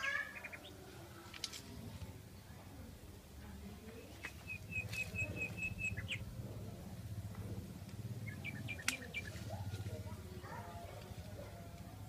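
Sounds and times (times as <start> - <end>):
small bird chirping: 0.0 - 0.9, 4.0 - 6.5, 7.9 - 9.9.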